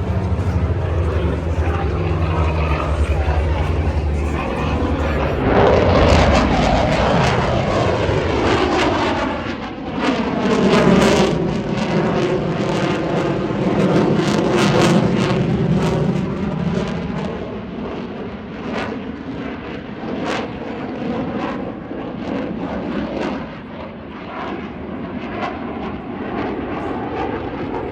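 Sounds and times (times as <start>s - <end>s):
aircraft flying past: 0.0s - 16.6s.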